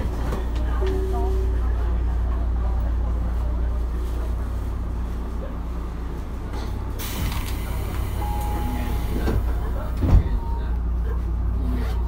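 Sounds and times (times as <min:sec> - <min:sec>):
electric train low rumble: 0:00.0 - 0:12.0.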